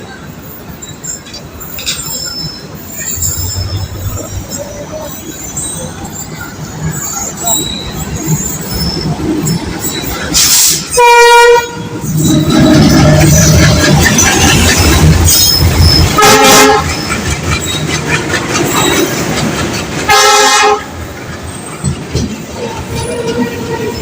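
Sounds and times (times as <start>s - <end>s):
train coaches rumbling on rails: 0.0s - 24.0s
train horn toots: 10.9s - 12.1s, 16.1s - 17.0s, 20.1s - 20.9s.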